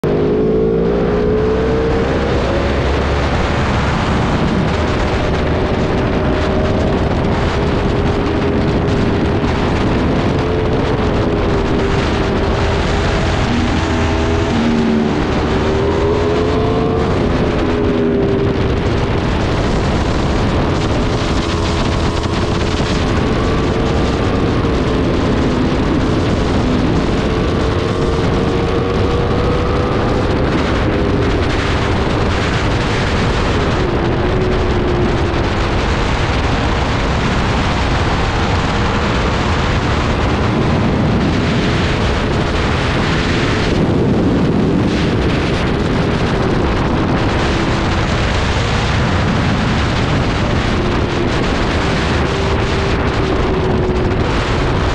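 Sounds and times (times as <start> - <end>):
motorcycle engine running hard: 0.0 - 54.9
wind noise on microphone: 0.0 - 54.9.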